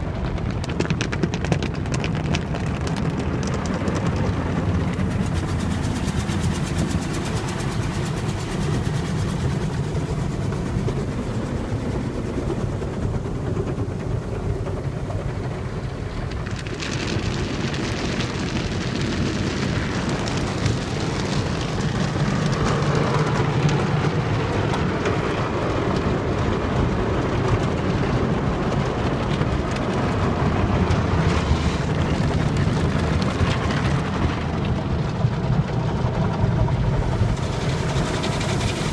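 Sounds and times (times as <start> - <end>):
car wash water spray: 4.8 - 23.7, 36.7 - 38.9.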